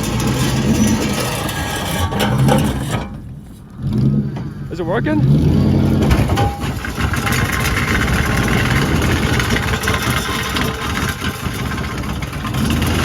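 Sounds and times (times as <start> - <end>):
car engine running rough: 0.0 - 13.0
loose exhaust rattling: 0.0 - 13.0.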